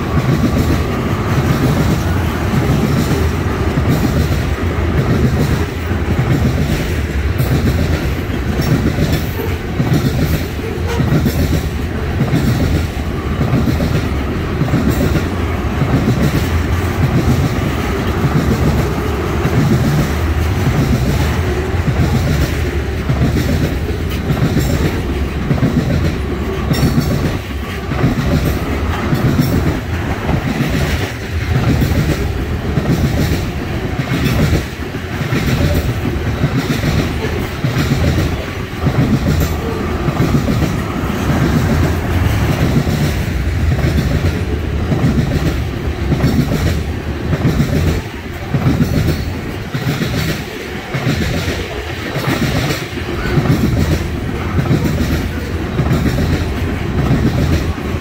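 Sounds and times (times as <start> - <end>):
train wheels clacking on rail joints: 0.0 - 58.0.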